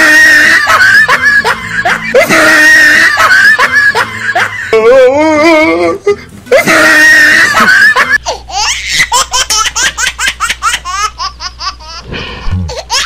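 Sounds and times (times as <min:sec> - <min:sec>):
laughter sound effect: 0:00.0 - 0:05.0, 0:06.5 - 0:08.2.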